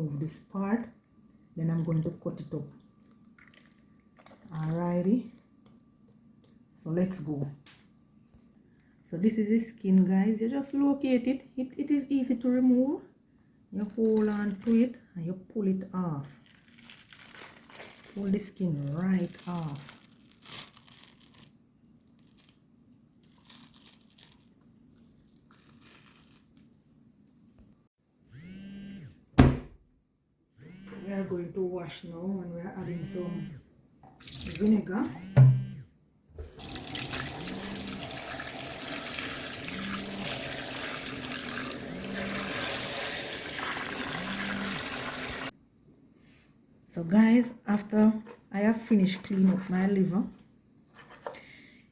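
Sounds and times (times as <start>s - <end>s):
wet tearing of membrane: 23.2s - 26.7s.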